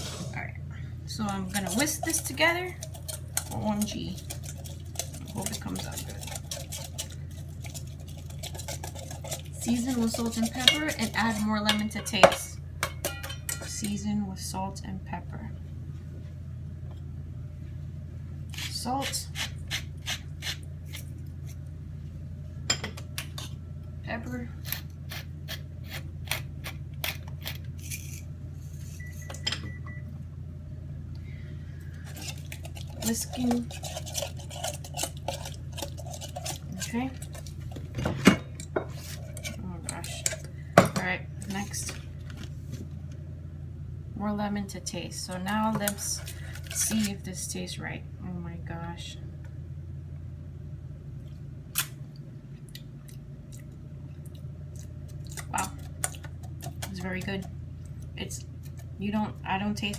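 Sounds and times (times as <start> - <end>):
steady low hum: 0.0 - 59.9
utensils clinking against bowl: 1.2 - 14.0, 32.1 - 42.0, 45.2 - 47.2.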